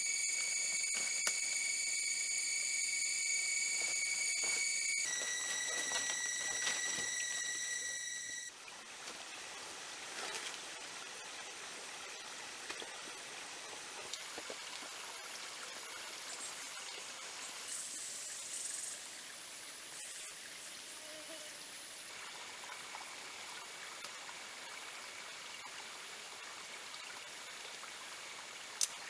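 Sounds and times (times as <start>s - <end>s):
whining insect chorus: 0.0s - 19.0s.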